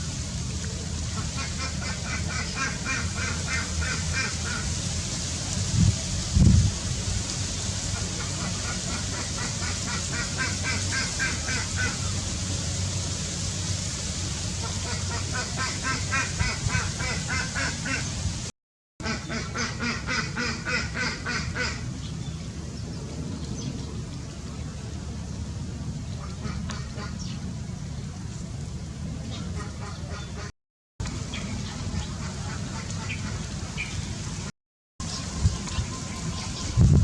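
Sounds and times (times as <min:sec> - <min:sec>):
birds calling: 0:01.2 - 0:04.6, 0:29.2 - 0:30.5, 0:31.2 - 0:34.2.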